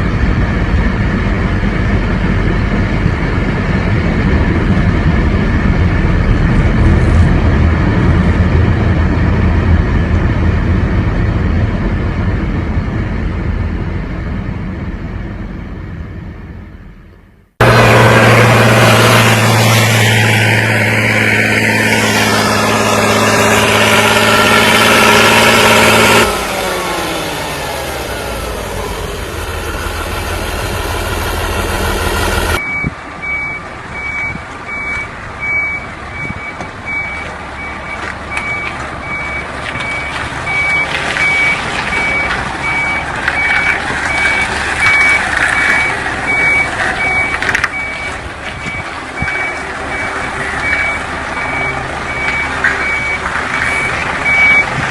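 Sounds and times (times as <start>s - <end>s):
vehicle engine running loudly: 0.0s - 33.4s, 34.0s - 54.9s
truck reversing alarm beeps: 27.2s - 54.8s.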